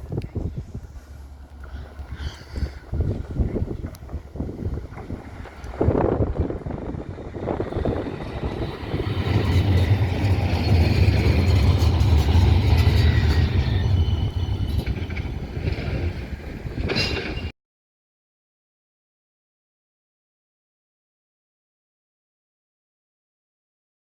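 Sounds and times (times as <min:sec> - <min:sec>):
tram rumbling past: 0:00.0 - 0:17.5.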